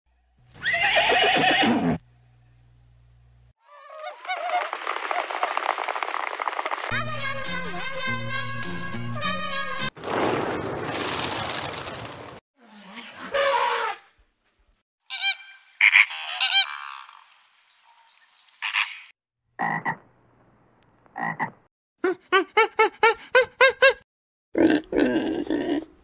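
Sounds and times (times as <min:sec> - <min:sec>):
frog croaks: 0:19.6 - 0:20.0, 0:21.2 - 0:21.6.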